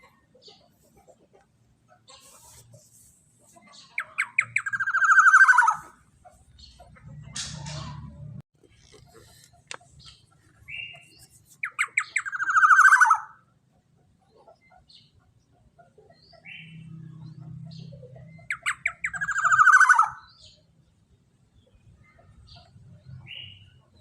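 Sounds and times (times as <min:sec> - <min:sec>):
oriole calling: 0:04.0 - 0:06.0.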